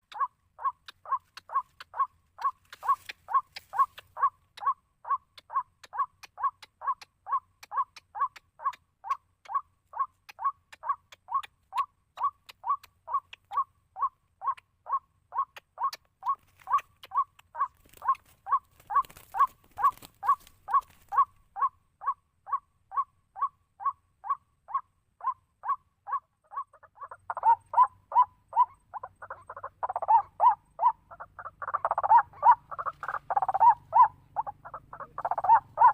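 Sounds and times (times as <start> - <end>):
waterhen call repeated: 0.1 - 35.9.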